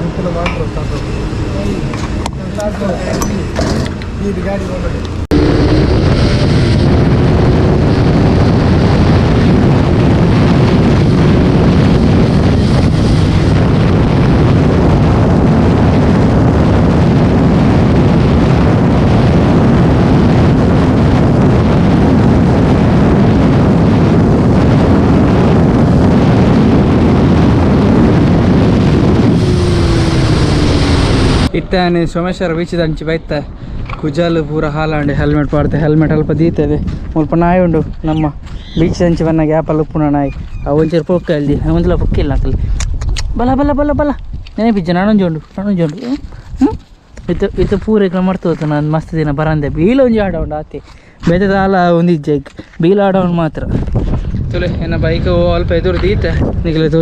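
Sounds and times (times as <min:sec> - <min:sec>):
wind rushing over microphone: 0:00.0 - 0:57.0
motorcycle engine running: 0:25.1 - 0:31.5.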